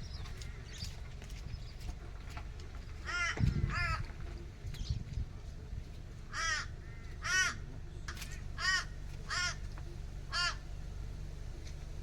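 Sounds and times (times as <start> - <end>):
crow cawing: 3.0 - 4.0, 6.3 - 7.6, 8.6 - 9.6, 10.3 - 10.6.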